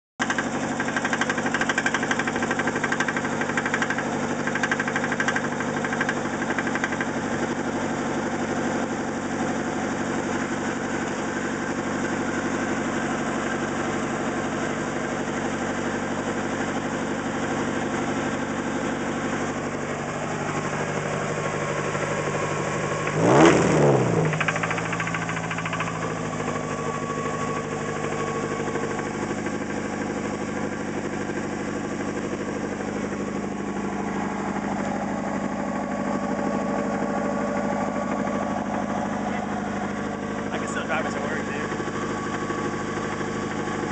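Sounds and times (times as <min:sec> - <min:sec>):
car engine idling with knock: 0:00.2 - 0:43.9
engine revving: 0:16.8 - 0:43.9.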